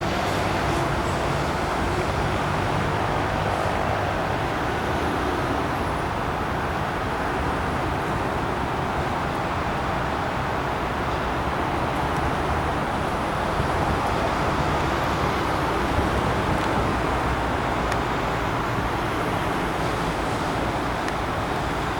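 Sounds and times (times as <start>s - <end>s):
train wheels rumbling on rails: 0.0s - 21.9s.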